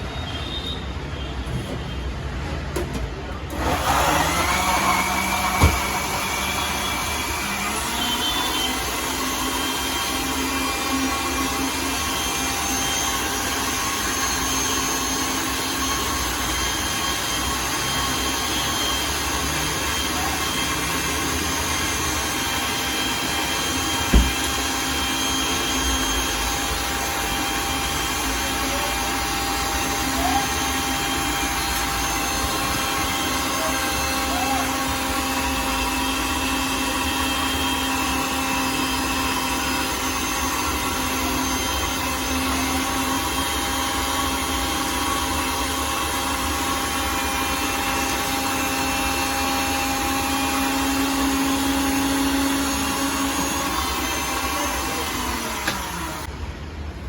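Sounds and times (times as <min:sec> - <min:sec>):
blender motor running: 0:03.4 - 0:56.3
short knock: 0:24.1 - 0:24.4.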